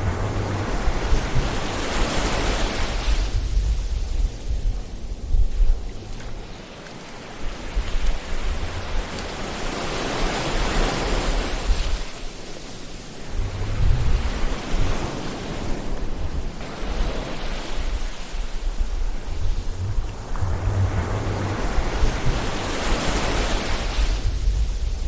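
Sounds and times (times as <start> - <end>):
low rumble: 0.0 - 2.3, 13.2 - 15.0, 16.2 - 25.0
ocean waves washing on shore: 0.0 - 25.0.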